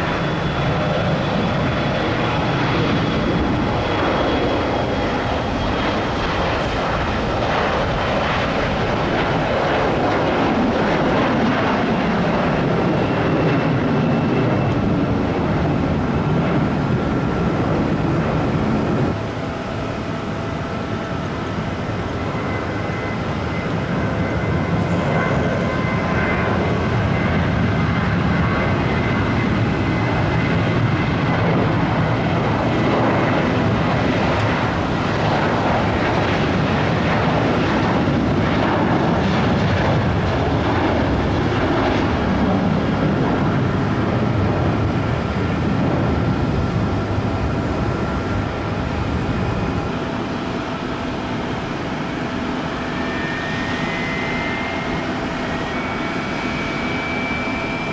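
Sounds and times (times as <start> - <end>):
airliner engines roaring: 0.0 - 57.9
faint high whine: 47.4 - 57.9.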